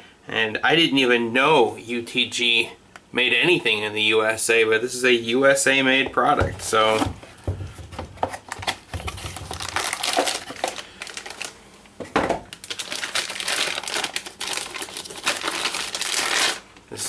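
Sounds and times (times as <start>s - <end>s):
plastic packaging crinkling: 6.4s - 16.8s.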